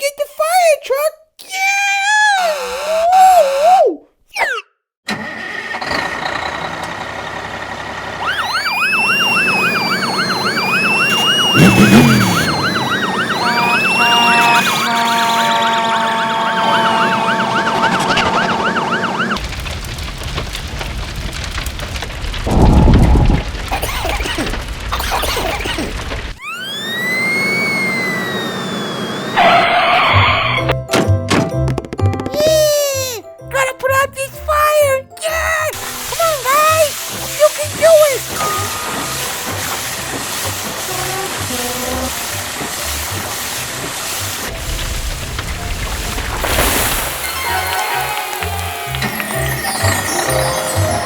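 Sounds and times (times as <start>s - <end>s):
fire engine siren wail and yelp: 5.1s - 19.7s, 26.4s - 30.6s, 47.2s - 51.0s
background music: 30.2s - 43.2s, 46.5s - 51.0s.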